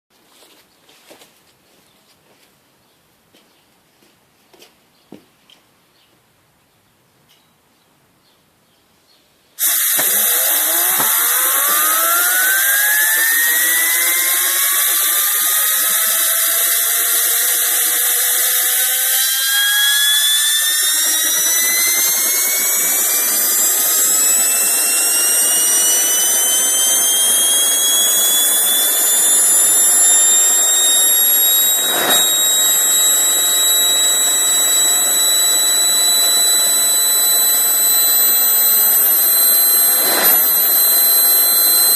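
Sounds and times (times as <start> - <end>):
rushing combustion noise: 9.6 - 41.9
turbojet engine whine: 9.6 - 41.9.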